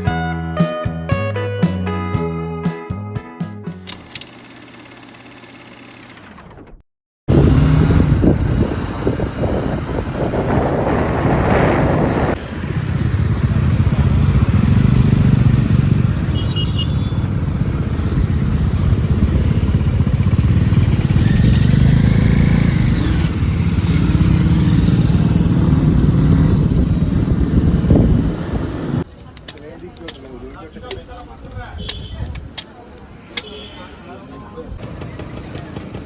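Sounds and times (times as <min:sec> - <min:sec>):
motorcycle engine running: 0:07.3 - 0:29.0.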